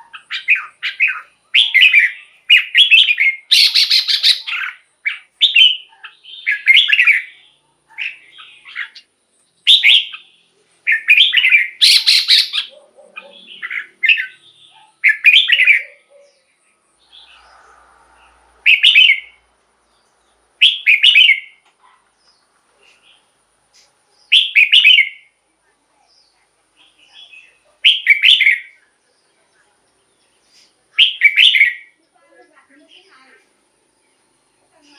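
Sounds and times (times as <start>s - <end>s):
bird singing whistled notes: 0.1s - 12.7s, 13.4s - 19.4s, 20.6s - 21.6s, 24.2s - 25.4s, 26.9s - 28.8s, 31.0s - 32.0s.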